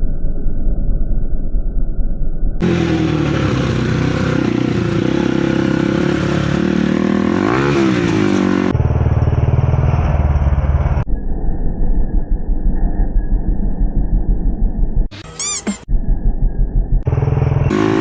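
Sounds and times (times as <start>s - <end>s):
dirt bike engine revving: 2.6s - 9.0s, 17.1s - 18.0s
dirt bike engines running: 2.6s - 11.0s, 17.2s - 18.0s.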